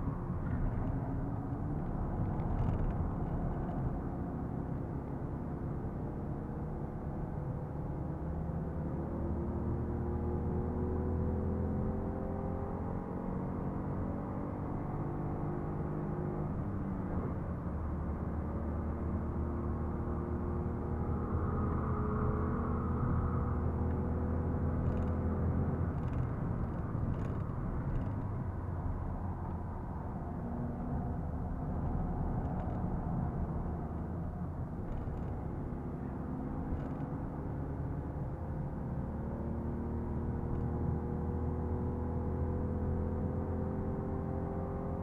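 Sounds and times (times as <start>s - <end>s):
road and tyre rumble: 0.0s - 45.0s
car engine running under load: 23.5s - 39.0s.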